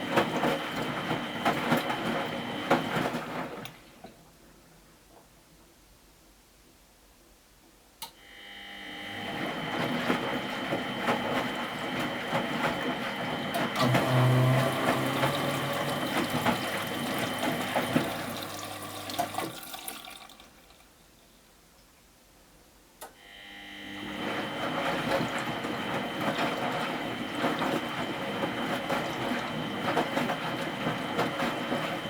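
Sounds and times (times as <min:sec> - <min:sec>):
water rushing in washing machine: 0:00.0 - 0:04.2, 0:08.7 - 0:20.9, 0:23.6 - 0:32.0.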